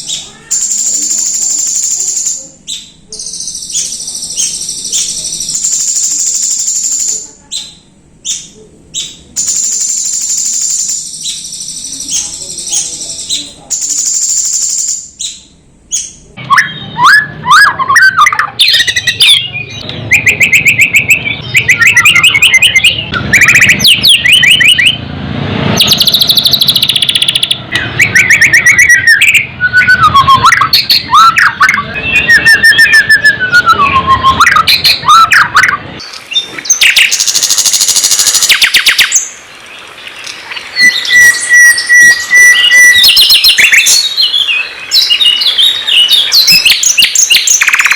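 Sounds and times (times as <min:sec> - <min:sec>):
songbird singing: 0:00.0 - 0:25.1, 0:25.8 - 0:47.9.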